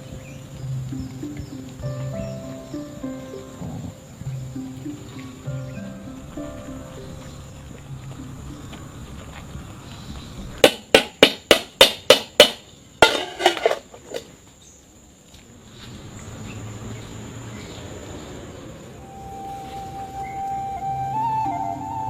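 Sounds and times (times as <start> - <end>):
sharp knocks: 10.6 - 13.8
rough cluster of knocks: 10.6 - 14.3.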